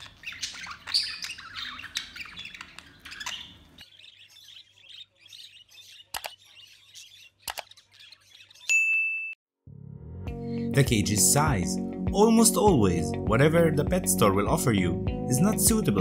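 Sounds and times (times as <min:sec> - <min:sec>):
budgerigars chirping and chattering: 0:00.0 - 0:08.7.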